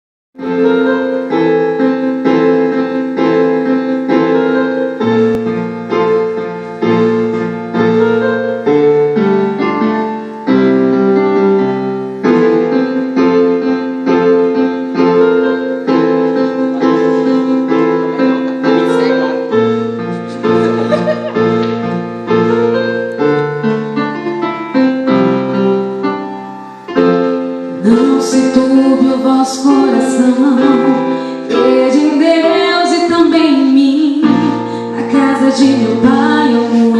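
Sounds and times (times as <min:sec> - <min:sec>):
piano chords in steady rhythm: 0:00.4 - 0:36.9.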